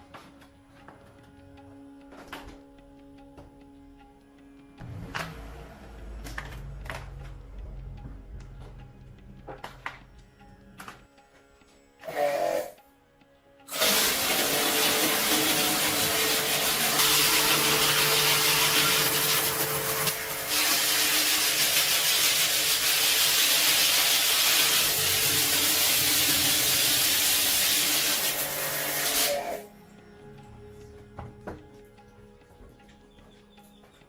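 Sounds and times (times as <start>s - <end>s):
power tool hissing: 13.7s - 29.6s.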